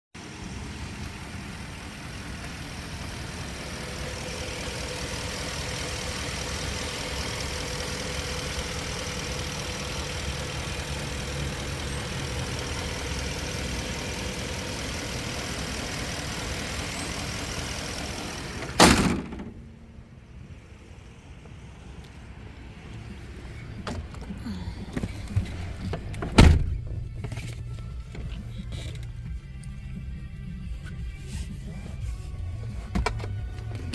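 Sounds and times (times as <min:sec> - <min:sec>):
truck engine idling: 0:00.2 - 0:33.9
loud thump: 0:18.8 - 0:19.6, 0:26.2 - 0:27.0.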